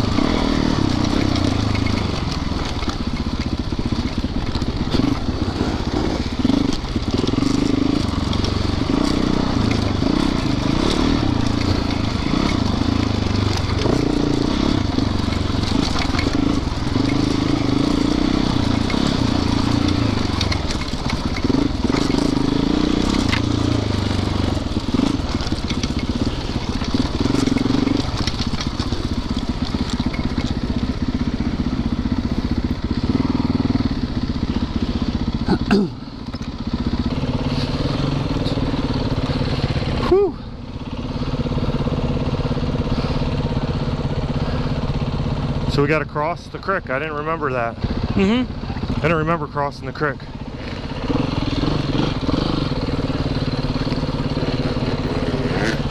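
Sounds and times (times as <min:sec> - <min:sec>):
knocks and crackles: 0:00.0 - 0:31.4
dirt bike engine revving: 0:00.0 - 0:55.9.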